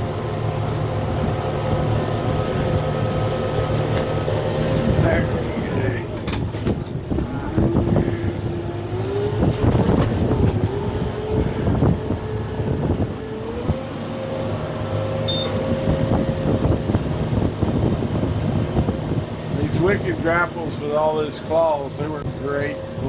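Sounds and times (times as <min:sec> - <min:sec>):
tractor diesel engine whining: 0:00.0 - 0:23.0
sharp cracks and knocks: 0:03.9 - 0:04.2.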